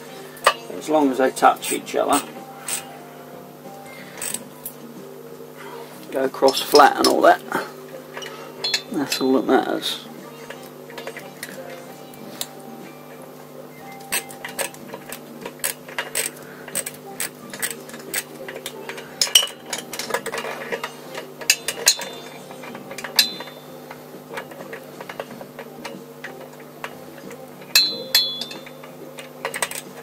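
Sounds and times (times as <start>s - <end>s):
steady low hum: 0.0s - 30.0s
metal tools clinking: 1.3s - 2.9s, 4.2s - 4.5s, 6.3s - 9.5s, 13.9s - 30.0s.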